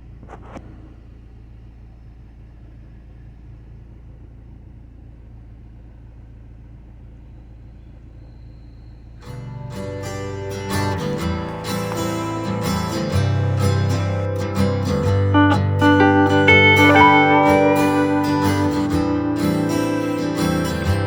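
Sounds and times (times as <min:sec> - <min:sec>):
car engine idling: 0:00.0 - 0:21.0
acoustic guitar music: 0:09.2 - 0:21.0.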